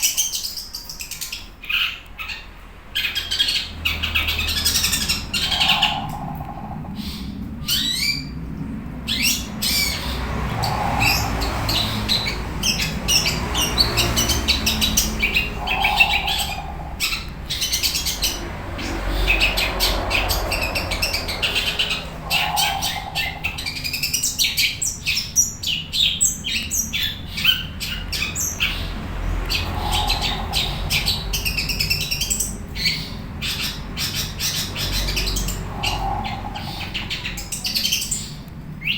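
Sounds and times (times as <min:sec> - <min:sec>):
bird singing and chattering: 0:00.0 - 0:38.9.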